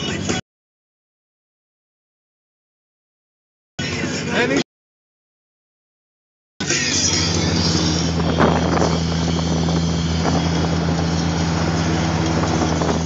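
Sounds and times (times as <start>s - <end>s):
car engine running: 6.6s - 13.0s
wind and road noise: 6.6s - 13.0s.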